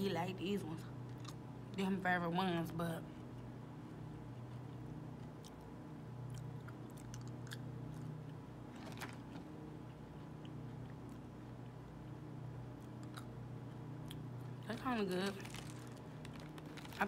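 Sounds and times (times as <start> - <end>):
steady low hum: 0.0 - 17.0
candy crunching while chewing: 4.2 - 17.0.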